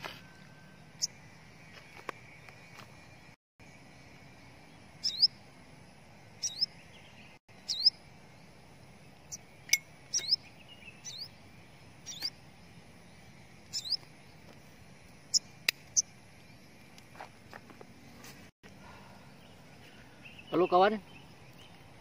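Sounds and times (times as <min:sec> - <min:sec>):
small bird calling: 0:05.0 - 0:05.5, 0:06.3 - 0:14.5.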